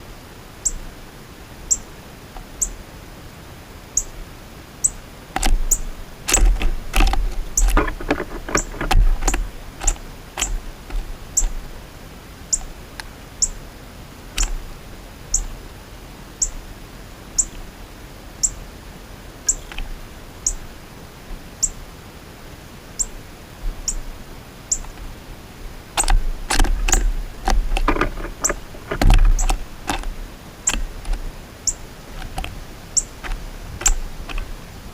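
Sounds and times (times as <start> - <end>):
quick clicking and tapping: 6.3 - 11.6, 26.0 - 30.1.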